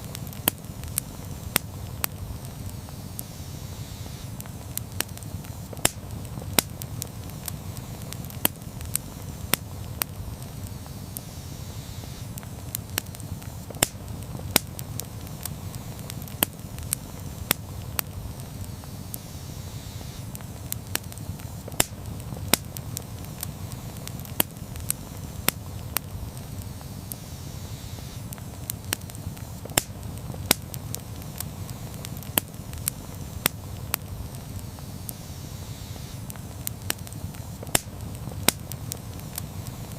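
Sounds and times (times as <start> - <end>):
fire crackling and popping: 0.0 - 39.9
flames rumbling: 0.0 - 39.9.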